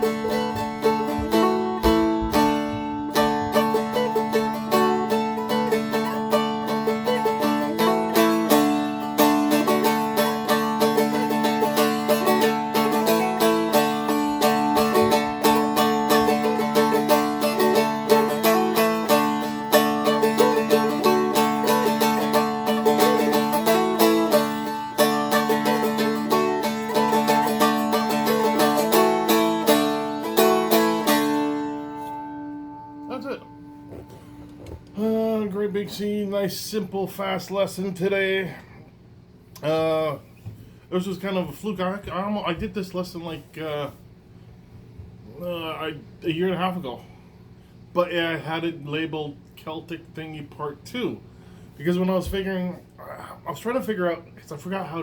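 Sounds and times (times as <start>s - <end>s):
strummed string instrument melody: 0.0s - 36.2s.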